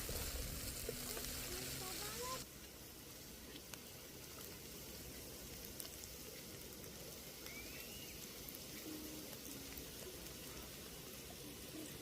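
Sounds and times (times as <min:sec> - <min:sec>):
faint high chirp: 0:07.4 - 0:09.2.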